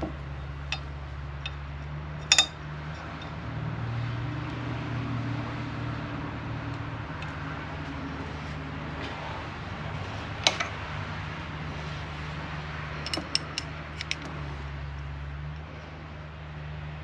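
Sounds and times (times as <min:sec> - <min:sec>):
metallic clicks of measuring tool: 0:13.0 - 0:14.3.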